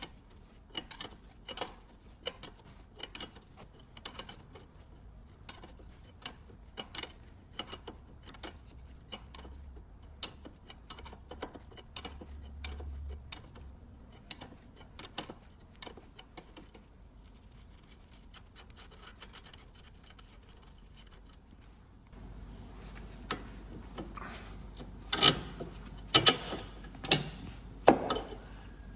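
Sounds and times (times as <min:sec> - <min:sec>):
hand tools clicking on metal: 0:22.2 - 0:28.7.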